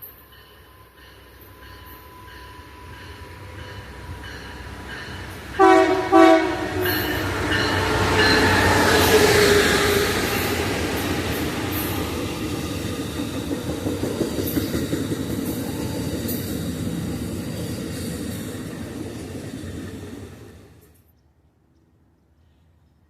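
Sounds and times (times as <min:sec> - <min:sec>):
passenger train passing: 0:00.0 - 0:21.0
wheels clicking over rail joints: 0:06.9 - 0:20.9.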